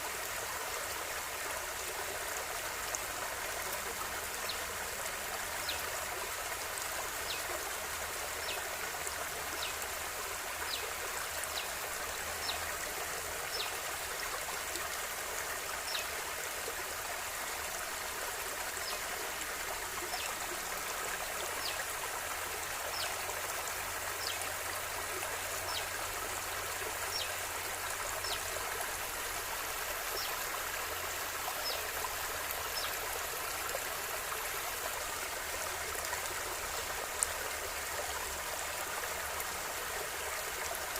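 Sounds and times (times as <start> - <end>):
river water flowing over stones: 0.0 - 40.9.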